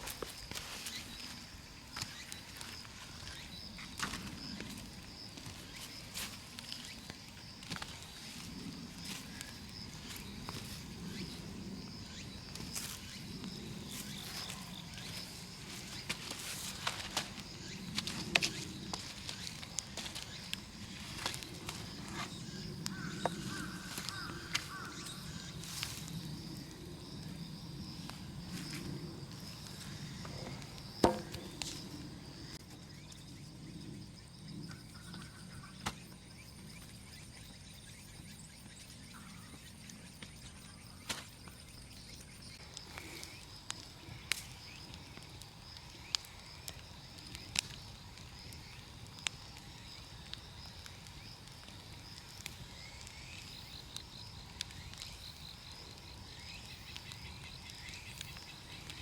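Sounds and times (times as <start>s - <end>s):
low rushing fire noise: 0.0s - 34.1s
bonfire crackling and popping: 0.0s - 34.6s, 39.6s - 59.0s
high insect trill: 0.0s - 59.0s.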